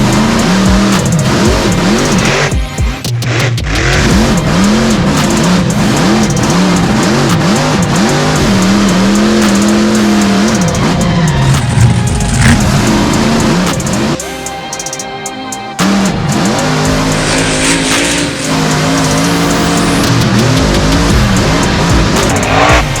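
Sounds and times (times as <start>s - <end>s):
truck engine revving hard: 0.0s - 2.5s, 3.2s - 14.2s, 15.8s - 23.0s
music: 0.0s - 23.0s.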